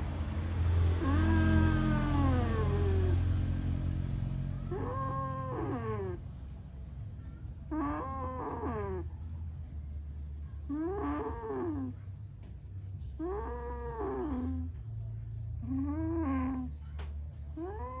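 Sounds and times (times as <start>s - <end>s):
cats yowling: 0.9s - 3.4s, 4.6s - 6.2s, 7.7s - 9.1s, 10.7s - 12.0s, 17.6s - 18.0s.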